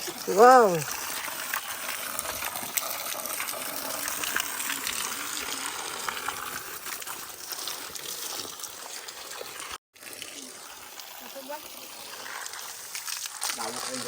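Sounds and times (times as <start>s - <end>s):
spring water gushing: 0.0s - 14.0s.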